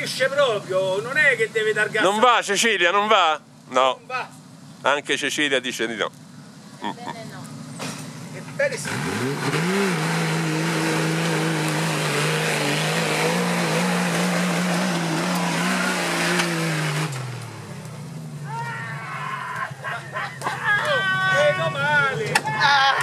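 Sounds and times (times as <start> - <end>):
engine revving hard: 8.7 - 17.7.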